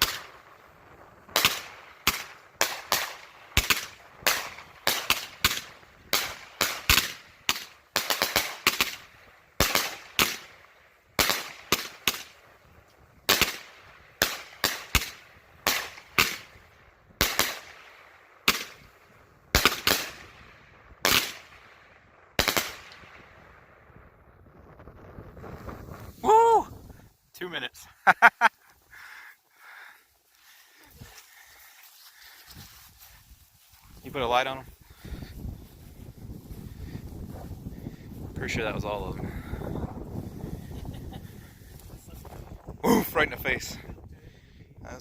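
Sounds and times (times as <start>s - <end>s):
fireworks bangs echoing: 1.2s - 10.6s, 11.2s - 12.4s, 17.2s - 21.7s.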